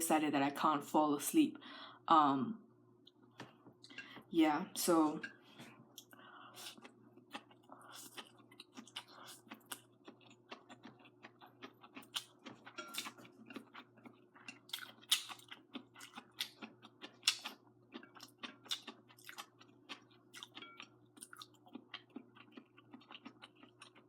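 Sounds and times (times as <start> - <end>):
faint steady hum: 0.0 - 24.0
person chewing food: 5.9 - 24.0.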